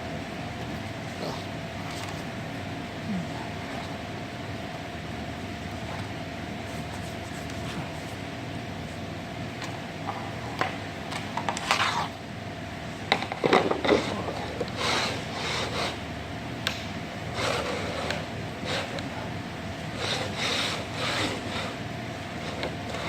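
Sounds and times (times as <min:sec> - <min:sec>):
steady hum: 0:00.0 - 0:23.0
board rubbing on board: 0:11.5 - 0:12.2, 0:13.8 - 0:16.0, 0:20.0 - 0:21.8.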